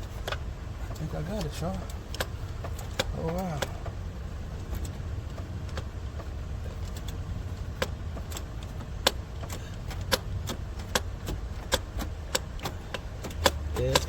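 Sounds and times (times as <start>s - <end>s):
ratchet clicking: 4.6s - 14.0s.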